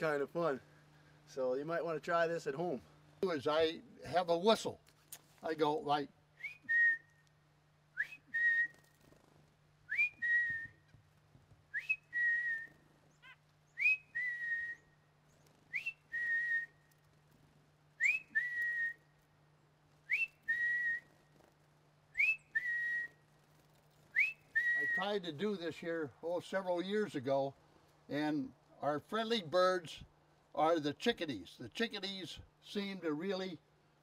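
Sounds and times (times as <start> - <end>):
person whistling bird call: 6.4 - 7.2, 8.0 - 8.8, 9.9 - 10.9, 11.7 - 12.7, 13.8 - 14.9, 15.7 - 16.8, 18.0 - 19.0, 20.1 - 21.1, 22.2 - 23.2, 24.1 - 25.0.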